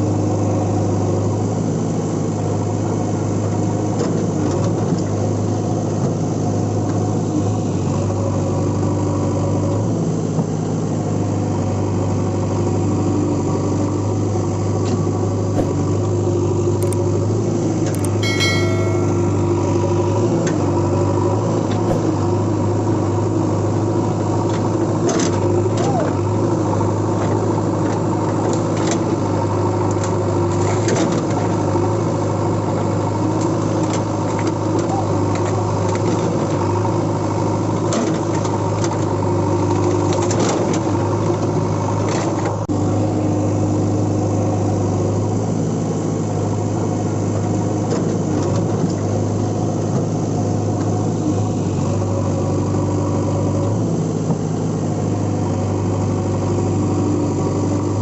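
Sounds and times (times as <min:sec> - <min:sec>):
engine-like hum: 0:00.0 - 0:58.0.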